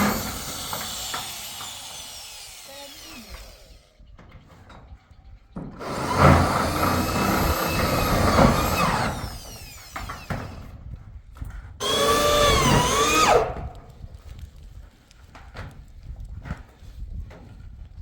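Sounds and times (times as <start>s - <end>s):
power drill running: 0.0s - 4.0s, 5.8s - 10.7s, 11.8s - 13.6s.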